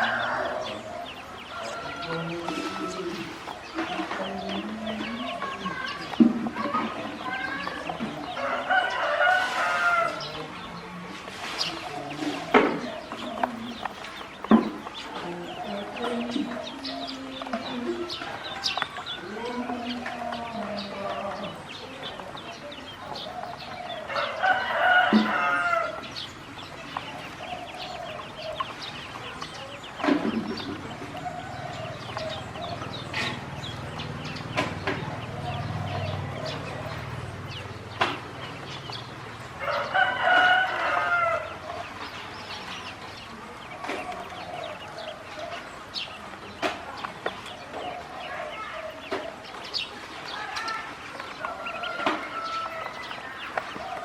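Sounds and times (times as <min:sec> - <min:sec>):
rooster crowing: 0:00.0 - 0:06.0, 0:06.6 - 0:10.8, 0:15.0 - 0:28.9, 0:39.6 - 0:42.7, 0:51.2 - 0:54.0
poultry calls: 0:00.0 - 0:54.0.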